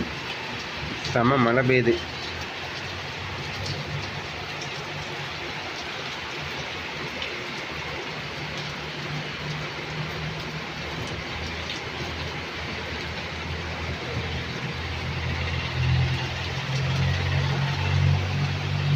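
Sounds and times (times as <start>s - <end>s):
heavy rain falling: 0.0s - 18.9s
low vehicle engine hum: 7.6s - 18.9s.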